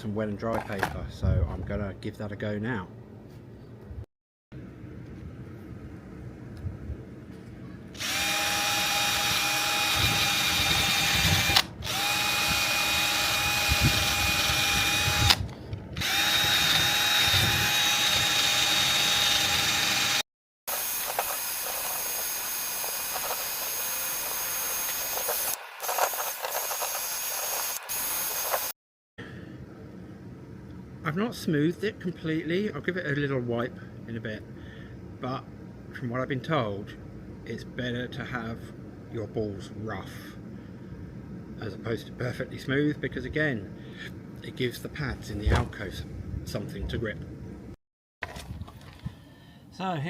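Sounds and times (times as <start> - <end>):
drill sanding steel: 8.0 - 15.3, 16.0 - 28.7.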